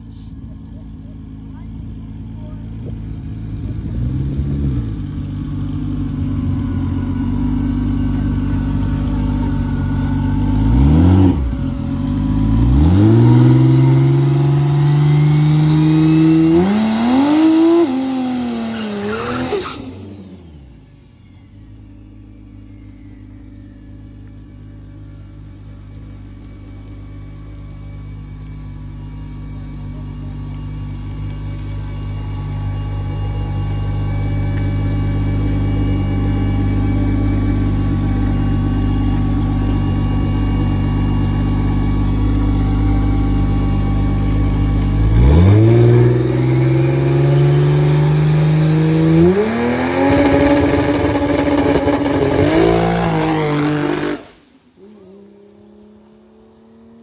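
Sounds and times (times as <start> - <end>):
drag car engine revving roughly: 8.0 - 20.8, 33.3 - 57.0.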